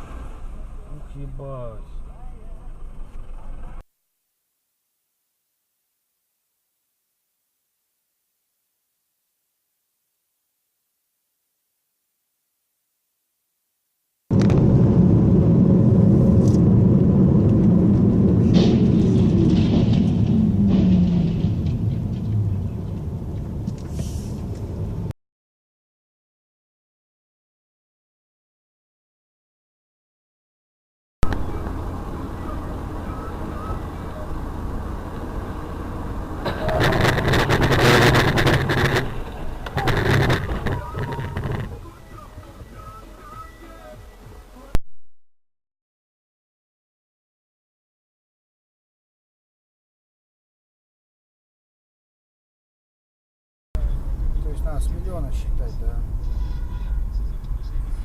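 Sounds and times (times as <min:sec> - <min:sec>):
car crash: 0:00.0 - 0:02.0, 0:14.3 - 0:23.2, 0:35.4 - 0:41.9
vehicle road and engine rumble: 0:00.0 - 0:03.9, 0:14.3 - 0:25.1, 0:31.2 - 0:44.8, 0:53.8 - 0:58.0.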